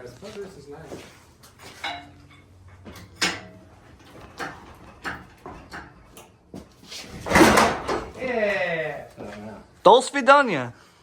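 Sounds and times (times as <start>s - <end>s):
tools knocking and clanking: 1.6s - 6.4s, 7.1s - 8.2s.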